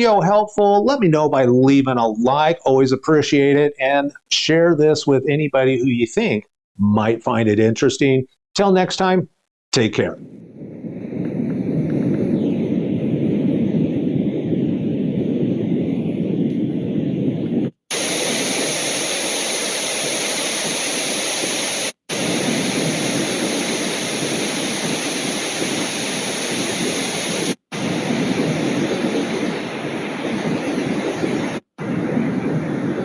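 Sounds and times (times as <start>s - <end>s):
bright full hiss: 17.9s - 27.6s.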